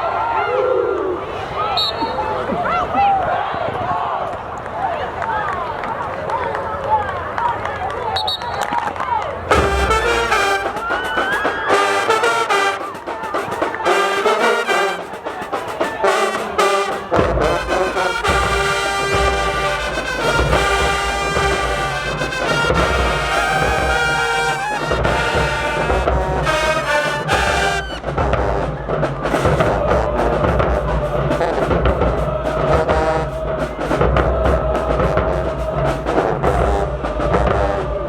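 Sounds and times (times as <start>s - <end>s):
drums: 9.4s - 38.0s
marching band brass playing: 9.4s - 38.0s.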